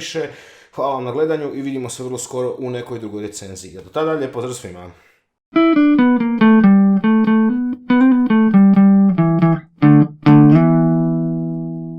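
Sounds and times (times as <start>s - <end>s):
electric guitar melody: 5.5s - 11.9s.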